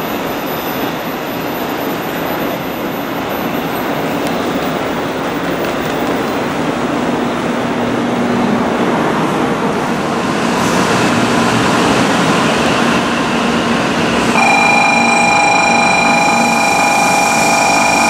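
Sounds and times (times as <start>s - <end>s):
bullet train rushing past: 0.0s - 18.0s
steady high tones: 14.4s - 18.0s.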